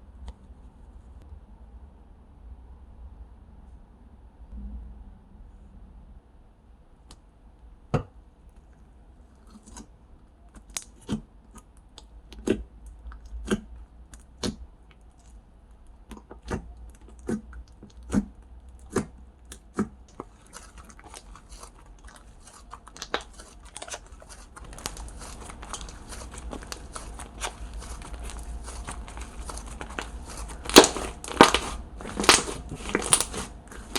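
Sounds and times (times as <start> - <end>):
slime wet pops and clicks: 30.7 - 33.4.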